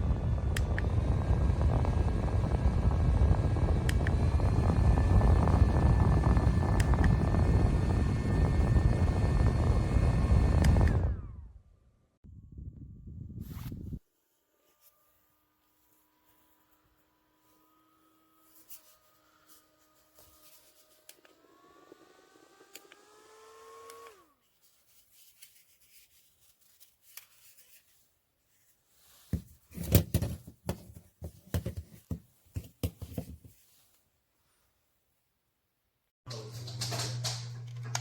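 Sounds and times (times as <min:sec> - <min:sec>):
small fan motor whining: 0:00.0 - 0:11.8, 0:12.4 - 0:24.4.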